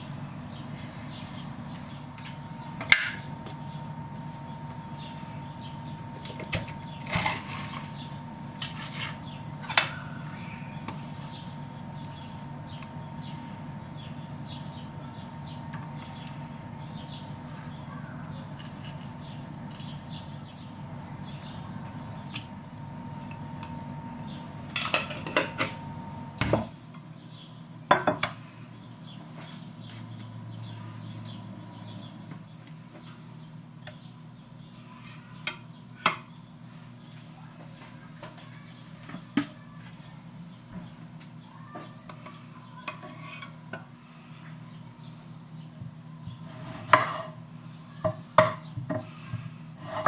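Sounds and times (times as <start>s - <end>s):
steady low hum: 0.0s - 50.0s
dishes and cutlery clinking: 24.8s - 25.8s.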